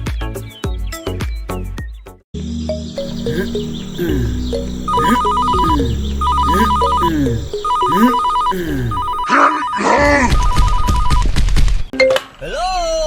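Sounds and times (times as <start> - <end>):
steady low tones: 3.0 - 9.2
falling chirps: 3.0 - 10.0
telephone ringing: 3.0 - 11.3.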